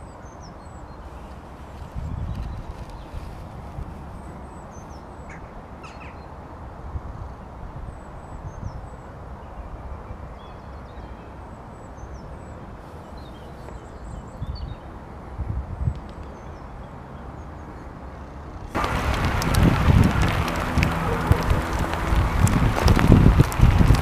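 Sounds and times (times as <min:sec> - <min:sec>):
wind buffeting microphone: 0:01.0 - 0:05.8, 0:14.0 - 0:16.3, 0:18.7 - 0:24.0
birds chirping: 0:18.8 - 0:24.0.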